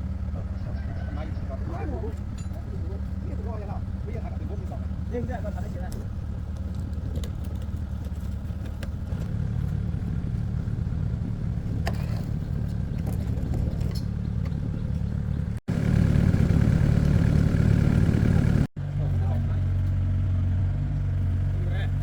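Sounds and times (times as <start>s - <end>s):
diesel excavator engine running: 0.0s - 22.0s
light clatters: 5.7s - 9.4s, 11.8s - 15.2s.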